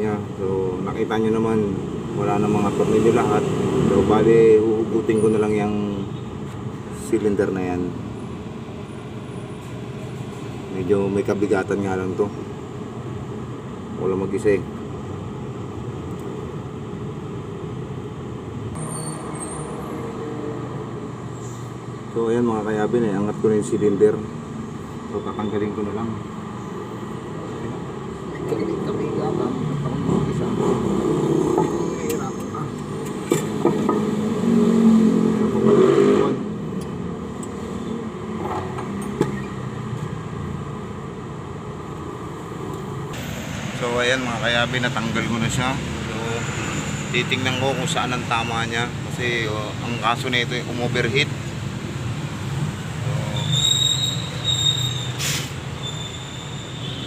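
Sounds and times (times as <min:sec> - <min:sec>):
traffic rumble: 0:00.0 - 0:57.0
faint high squeaks: 0:53.3 - 0:57.0.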